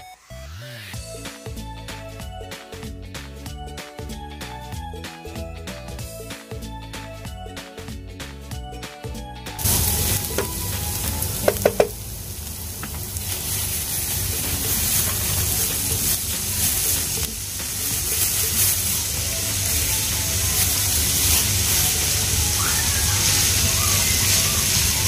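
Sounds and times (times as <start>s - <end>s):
aromatics sizzling in hot oil: 9.6s - 25.0s
wooden spatula stirring and scraping: 12.8s - 22.2s.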